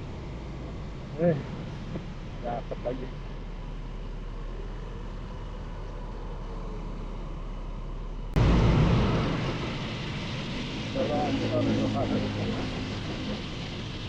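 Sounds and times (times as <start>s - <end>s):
wind rushing: 8.4s - 14.0s.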